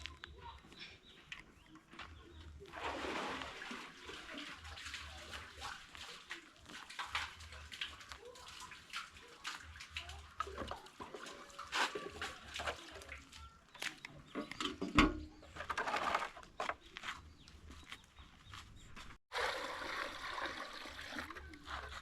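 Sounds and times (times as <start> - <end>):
water splashing and pouring: 2.5 - 13.7, 19.3 - 22.0.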